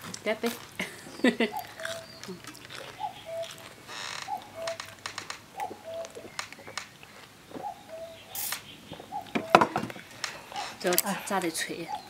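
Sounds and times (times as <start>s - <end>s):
brief hiss: 8.4s - 8.7s.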